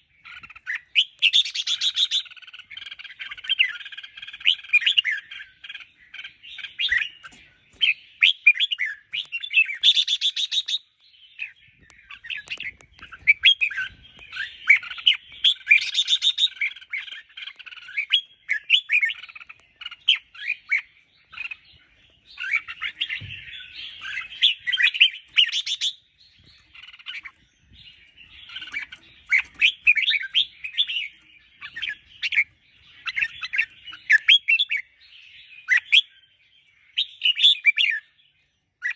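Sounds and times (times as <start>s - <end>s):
bird singing warbled phrases: 0.0s - 38.9s.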